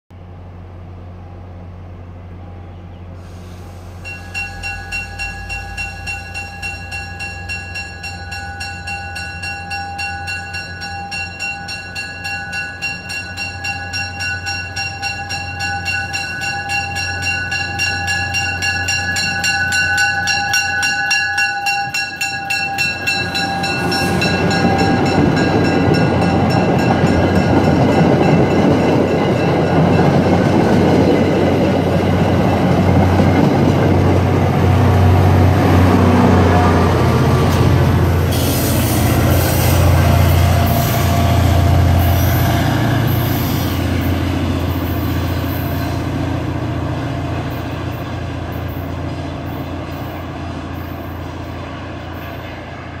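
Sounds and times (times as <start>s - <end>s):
diesel locomotive rumble: 0.1s - 53.0s
train wheels on rails: 3.1s - 53.0s
bell ringing rapidly: 4.1s - 30.2s.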